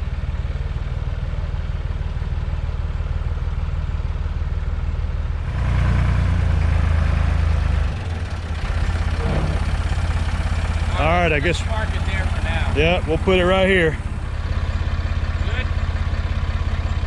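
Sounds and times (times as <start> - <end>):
forklift engine running: 5.2 - 17.0.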